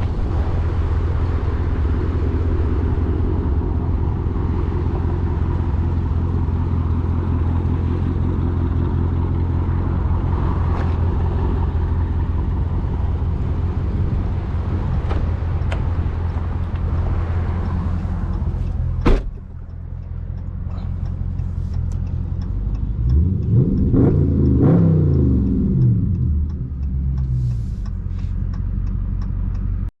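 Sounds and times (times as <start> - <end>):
car engine running: 0.0 - 29.9
light engine ticking: 15.5 - 29.9.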